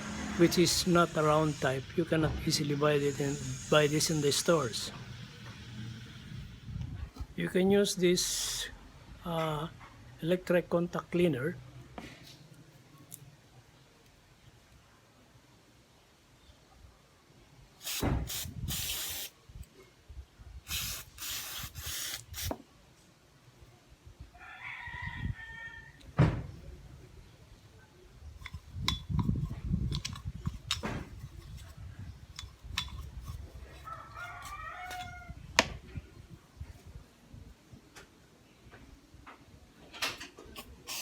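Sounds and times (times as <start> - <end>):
aerosol spray hissing: 0.0 - 6.3, 17.8 - 19.3, 20.7 - 22.6
metal parts clicking and knocking: 28.4 - 31.7.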